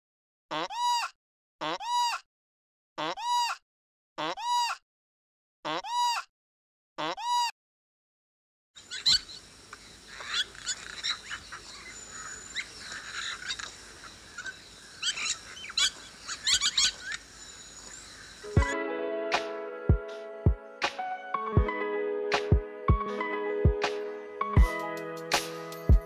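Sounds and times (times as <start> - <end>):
ambient hiss: 8.8 - 18.6
small birds chirping: 8.8 - 18.8.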